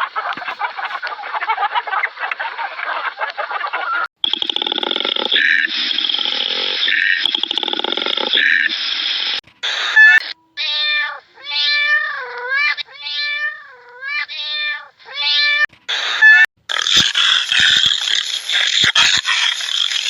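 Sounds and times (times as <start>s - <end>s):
cat meowing: 9.9s - 16.5s.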